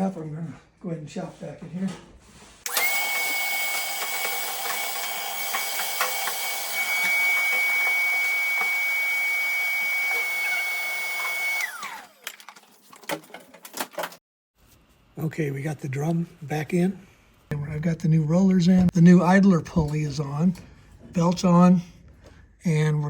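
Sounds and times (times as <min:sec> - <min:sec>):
shop vacuum whining: 0:02.7 - 0:12.3.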